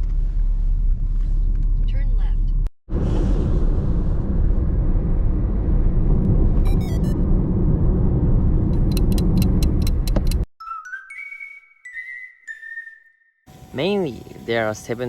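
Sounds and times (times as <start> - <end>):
car road and engine rumble: 0.0 - 10.5.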